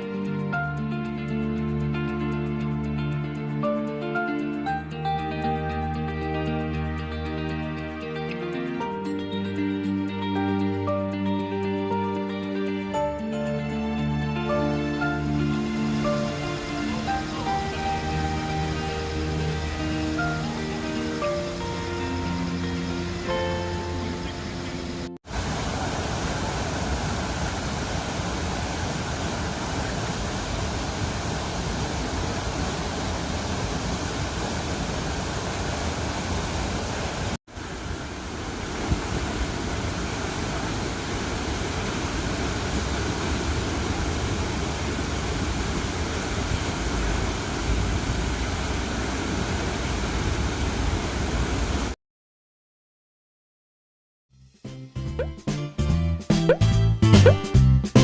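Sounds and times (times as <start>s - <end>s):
rushing falling water: 12.9s - 52.0s.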